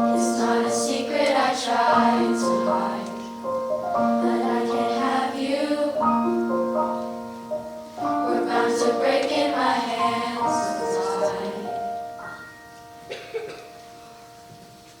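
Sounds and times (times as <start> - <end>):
children's choir singing: 0.0 - 7.2, 8.0 - 12.1
piano accompaniment: 0.0 - 15.0.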